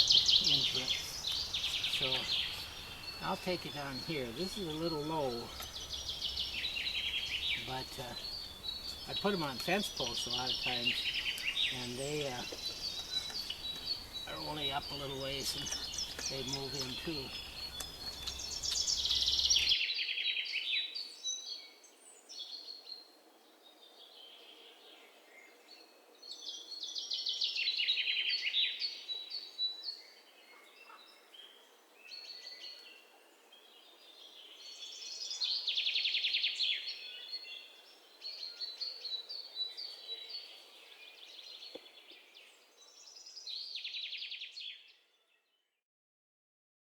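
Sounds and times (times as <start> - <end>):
songbird trilling: 0.0 - 20.8
soft bird chirps: 0.0 - 45.5.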